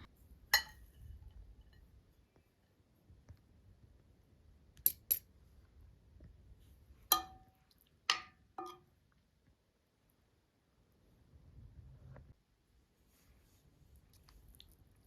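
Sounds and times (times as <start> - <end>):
tableware clinking on plate: 0.6 - 0.9, 8.1 - 8.8.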